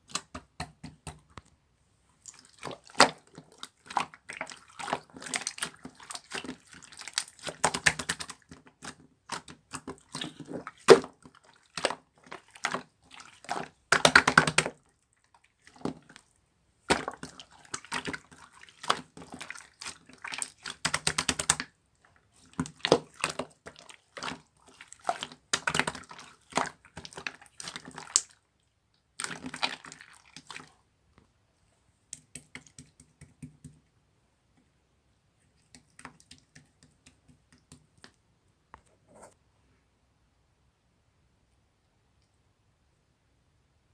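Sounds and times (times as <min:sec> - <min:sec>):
hands squishing slime: 0:02.2 - 0:28.4, 0:29.1 - 0:30.8, 0:35.5 - 0:38.2.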